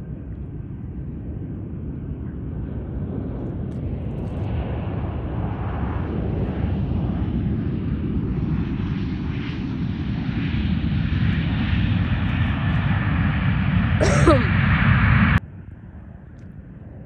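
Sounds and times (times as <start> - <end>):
airplane engine rumble: 0.0 - 17.0.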